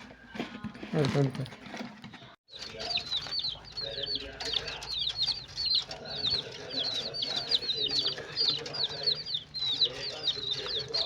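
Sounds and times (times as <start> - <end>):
chickens clucking: 2.5 - 11.0
chicks peeping: 2.5 - 11.0.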